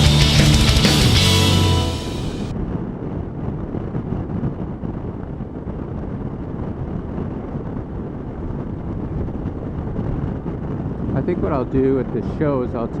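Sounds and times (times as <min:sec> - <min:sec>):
motorcycle road noise: 0:00.0 - 0:02.5
wind rush on microphone: 0:02.0 - 0:13.0.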